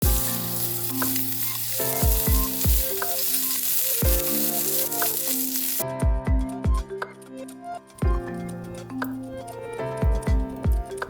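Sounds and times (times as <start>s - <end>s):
food sizzling in a pan: 0.0s - 5.8s
background music with bass drum: 0.0s - 7.2s, 8.0s - 11.0s.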